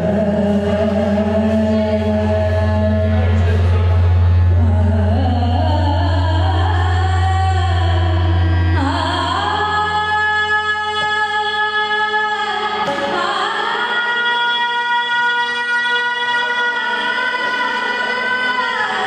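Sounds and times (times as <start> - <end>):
low drone: 0.0 - 15.4.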